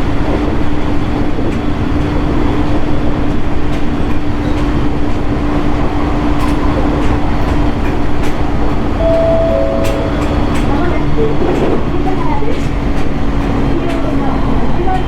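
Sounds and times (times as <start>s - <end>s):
high steady tone: 9.0s - 10.8s.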